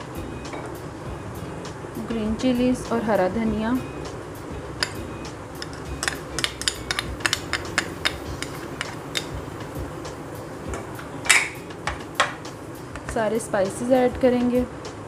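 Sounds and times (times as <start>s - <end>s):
utensil clinking against dishes: 4.8s - 9.7s, 10.7s - 13.2s.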